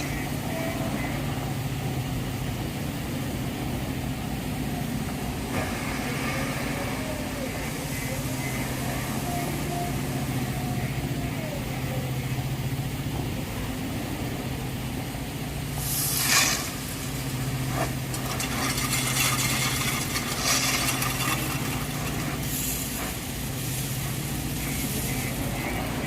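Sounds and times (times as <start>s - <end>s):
diesel engine running: 0.0s - 26.0s
loud burst of noise: 3.4s - 12.8s, 15.3s - 26.0s.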